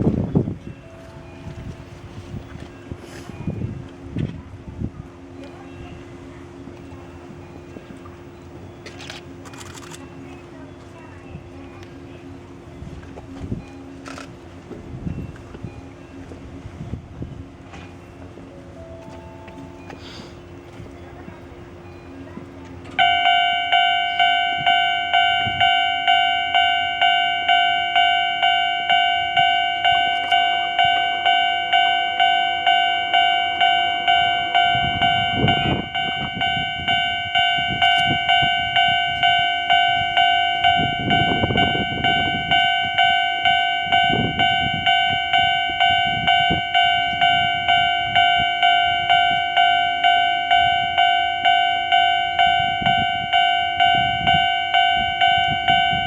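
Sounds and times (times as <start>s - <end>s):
level crossing alarm clanging: 0.0s - 4.4s, 5.3s - 56.0s.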